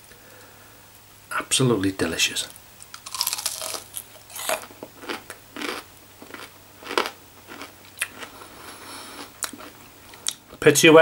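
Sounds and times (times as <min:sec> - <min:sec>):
crunching fried chicken: 0:02.9 - 0:10.5.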